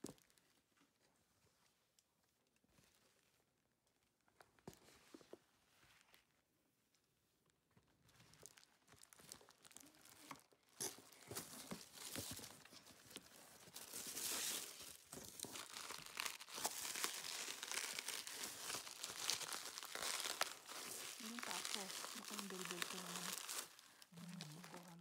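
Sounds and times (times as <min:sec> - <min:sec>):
packaging crinkling and rustling: 0:00.0 - 0:01.1, 0:07.8 - 0:25.0.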